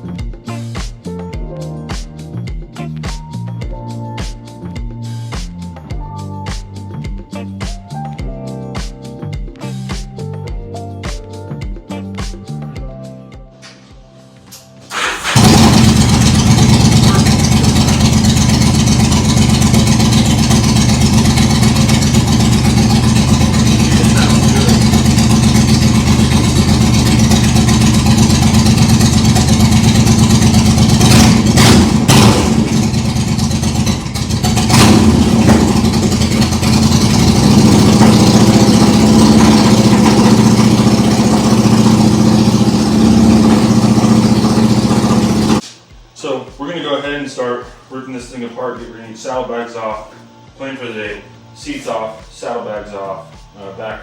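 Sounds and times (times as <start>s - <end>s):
motorcycle engine running: 14.9s - 45.6s.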